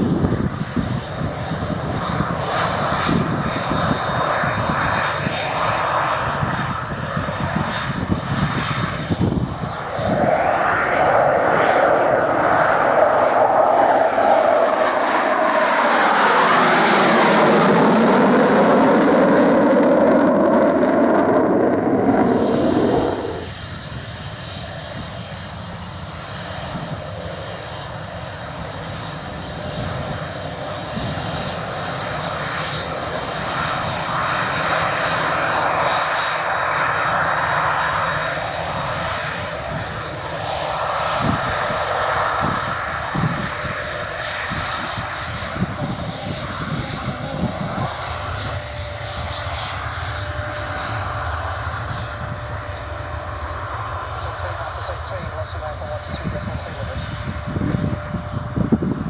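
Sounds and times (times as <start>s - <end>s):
jet engines running: 0.0s - 59.0s
thin high whine: 14.1s - 23.7s.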